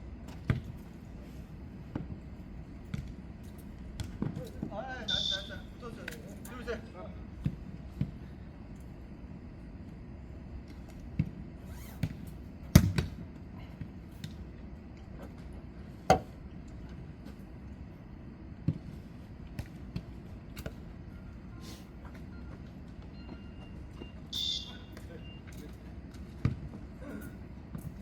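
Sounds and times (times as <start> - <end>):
steady low hum: 0.0 - 28.0
ball kicked and bouncing thuds: 0.3 - 0.8, 11.1 - 13.2, 16.1 - 16.4.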